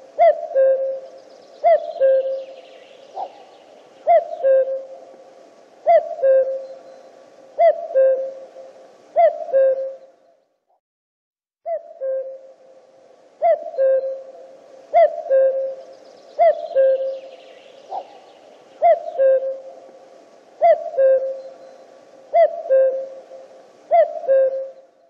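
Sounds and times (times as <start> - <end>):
cuckoo calling: 0.0 - 10.4, 11.7 - 12.8, 13.4 - 25.0.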